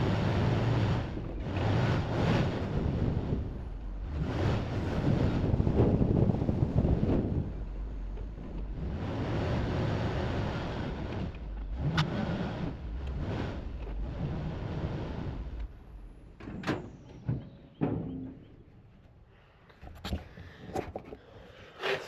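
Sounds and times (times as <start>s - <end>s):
wind noise: 0.0s - 11.4s
vehicle engine rumble: 0.0s - 22.0s.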